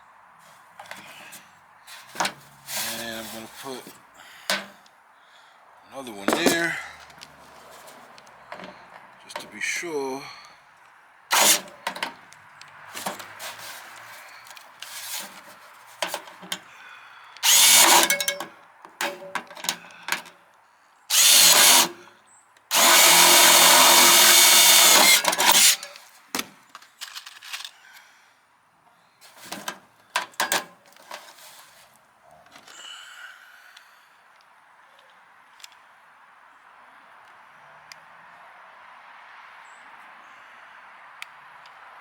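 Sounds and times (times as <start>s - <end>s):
handling clicks and clatter: 6.2s - 7.3s, 11.3s - 16.7s, 17.8s - 20.3s, 24.4s - 27.8s
power drill whining: 6.3s - 6.8s, 11.3s - 11.9s, 17.4s - 18.4s, 21.1s - 22.0s, 22.7s - 26.0s.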